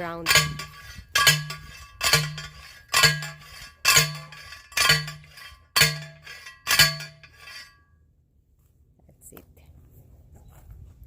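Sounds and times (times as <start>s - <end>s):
metal post clanking strikes: 0.0s - 7.8s.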